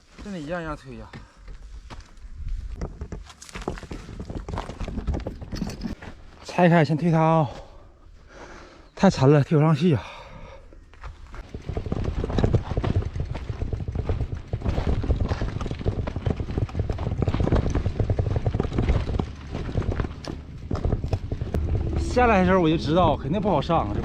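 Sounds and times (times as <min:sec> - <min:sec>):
footsteps crunching on loose ground: 0:00.0 - 0:05.4, 0:13.4 - 0:22.2
bicycle tyres on loose ground: 0:00.0 - 0:06.5, 0:10.7 - 0:24.0
low rumble: 0:16.0 - 0:24.0.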